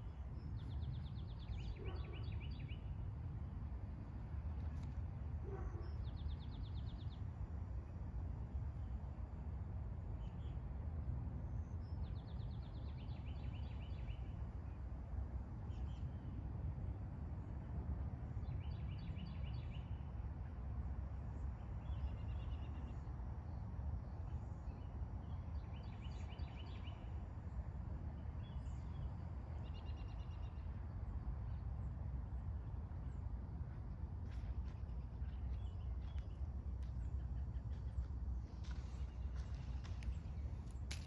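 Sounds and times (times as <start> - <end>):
songbird singing: 0.0 - 3.0, 21.8 - 27.4, 28.2 - 31.9, 32.7 - 41.0
low outdoor rumble: 27.0 - 41.0.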